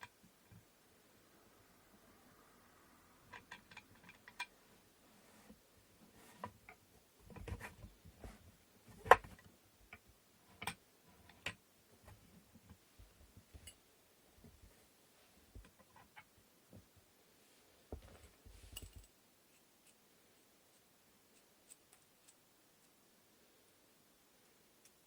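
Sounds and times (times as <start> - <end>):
wooden parts clicking and knocking: 3.3 - 4.5.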